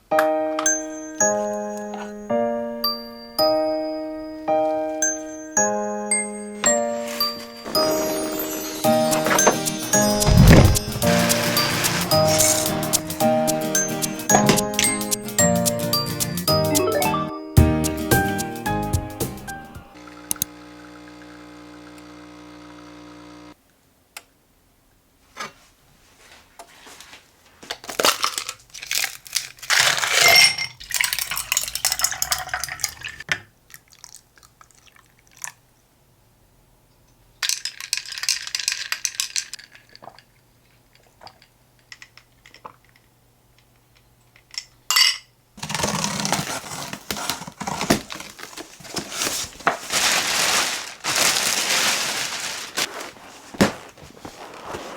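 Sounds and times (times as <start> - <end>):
background music: 0.1 - 20.0
rustling: 6.8 - 13.1, 45.6 - 54.9
hard objects clinking: 13.8 - 15.1, 28.1 - 33.2.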